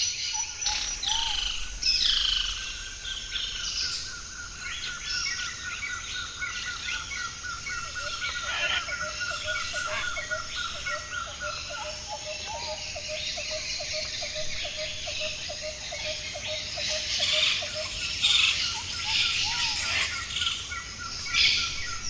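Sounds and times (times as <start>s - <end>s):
bird chorus: 0.0s - 22.0s.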